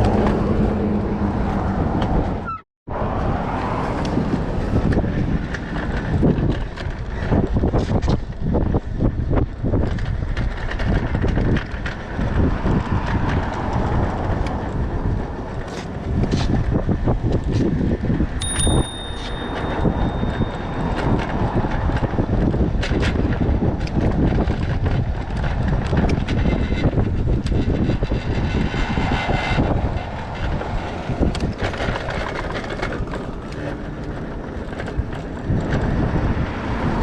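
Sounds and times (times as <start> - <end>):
wind buffeting microphone: 0.0 - 37.0
high ringing tone: 18.4 - 21.5.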